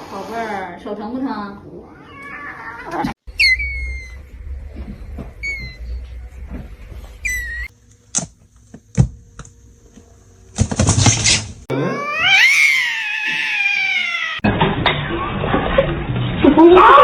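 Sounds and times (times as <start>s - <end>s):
cat yowling: 1.9s - 4.2s, 11.7s - 14.4s.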